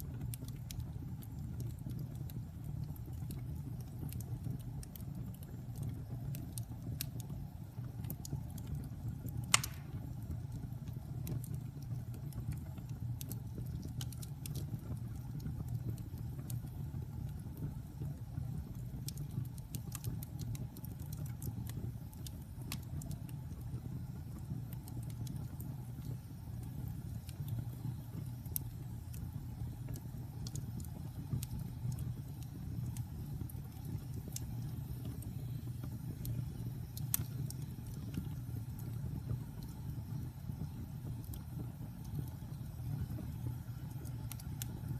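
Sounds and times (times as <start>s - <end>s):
wood fire crackling: 0.0s - 44.9s
loud pop of fire: 9.4s - 10.3s.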